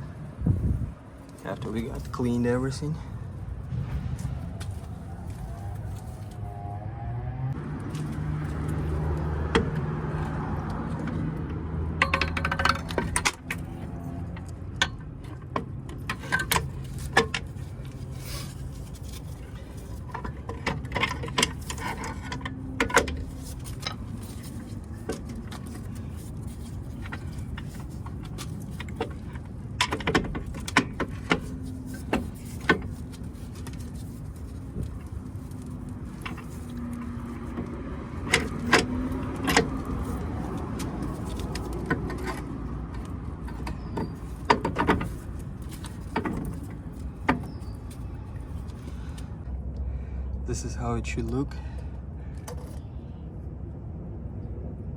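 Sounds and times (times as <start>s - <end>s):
metallic clinks and knocks: 12.0s - 49.0s.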